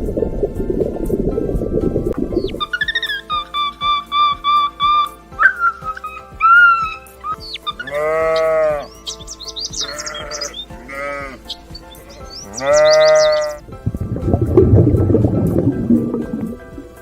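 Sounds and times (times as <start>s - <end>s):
sheep bleating: 7.7s - 8.9s, 9.7s - 11.5s, 12.1s - 13.6s.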